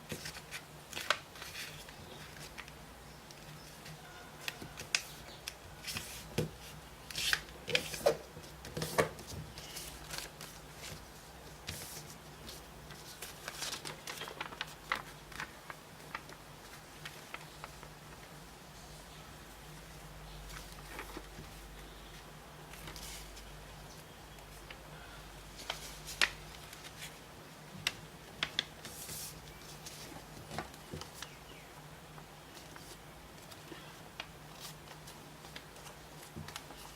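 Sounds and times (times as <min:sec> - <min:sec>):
paper being folded and creased: 0:03.6 - 0:18.3, 0:20.5 - 0:23.5.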